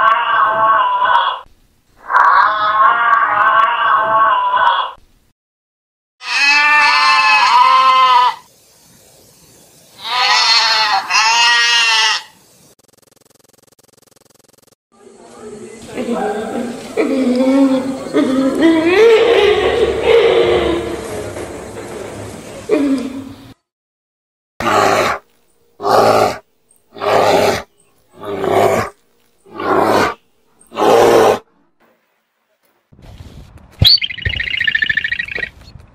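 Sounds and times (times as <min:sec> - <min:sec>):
goat bleating: 0:06.2 - 0:08.4, 0:10.0 - 0:12.4.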